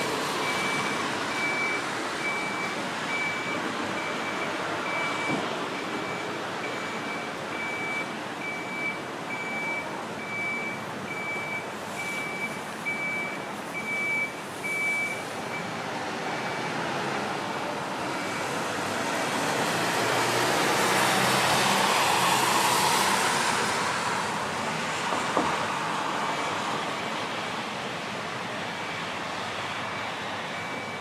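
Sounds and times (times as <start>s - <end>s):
reversing alarm beeps: 0.4s - 15.6s, 30.0s - 31.0s.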